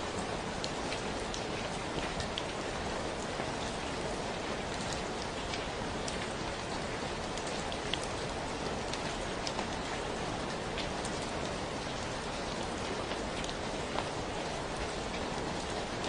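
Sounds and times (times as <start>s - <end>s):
steady rainfall hiss: 0.0s - 16.0s.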